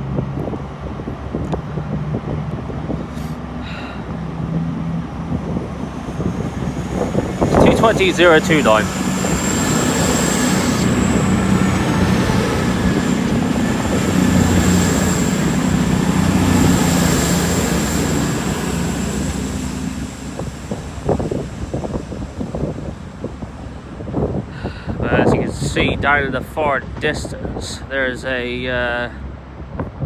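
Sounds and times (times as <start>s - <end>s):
train diesel engine hum: 0.0s - 29.7s
thin high whine: 3.6s - 25.4s
buffeting thumps: 4.5s - 24.5s.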